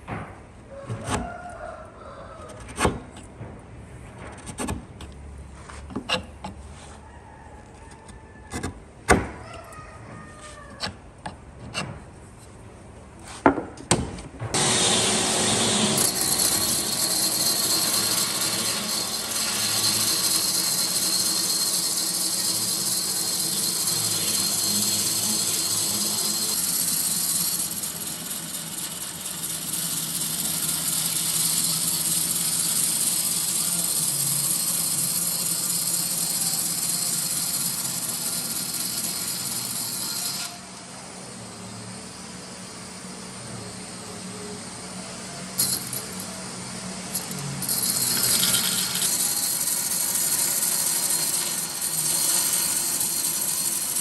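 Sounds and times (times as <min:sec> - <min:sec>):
power tool cutting wood: 0:14.6 - 0:41.4, 0:47.1 - 0:54.0.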